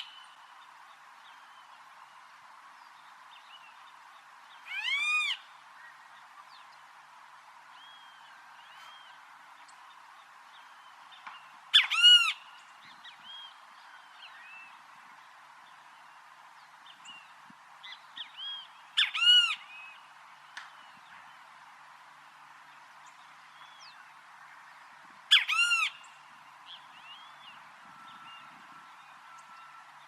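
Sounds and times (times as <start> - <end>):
steady hiss: 0.0 - 11.8
other birds chirping: 3.6 - 6.8, 7.8 - 15.2, 17.8 - 21.3
kiskadee calling loudly: 4.7 - 5.5, 11.7 - 12.5, 19.0 - 19.7, 25.3 - 26.1.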